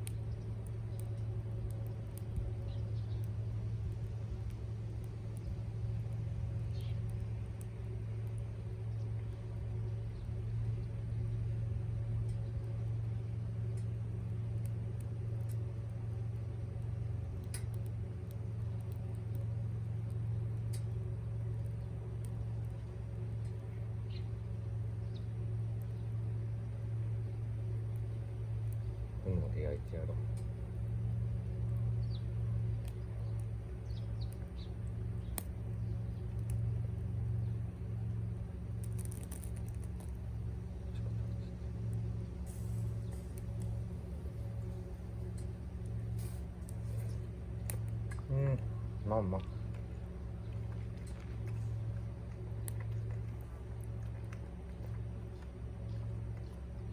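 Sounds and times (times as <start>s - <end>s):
campfire popping: 0.0s - 56.9s
low hum: 0.0s - 56.9s
low rumble: 0.0s - 56.9s
faint sharp clicks: 17.4s - 21.0s, 32.8s - 36.6s, 47.6s - 48.3s
birds chirping: 23.8s - 46.2s.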